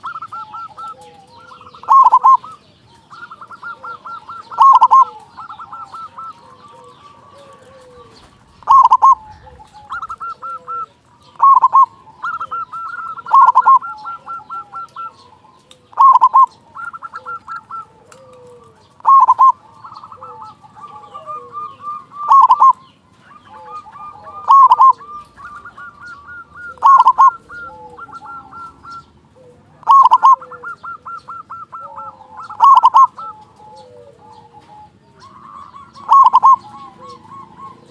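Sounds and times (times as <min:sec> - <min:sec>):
dove cooing: 0:00.0 - 0:37.9.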